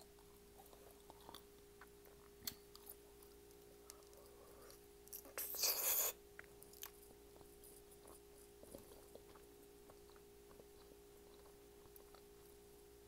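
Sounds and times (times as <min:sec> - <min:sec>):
faint steady hum: 0:00.0 - 0:13.0
closed-mouth chewing clicks: 0:06.4 - 0:12.6.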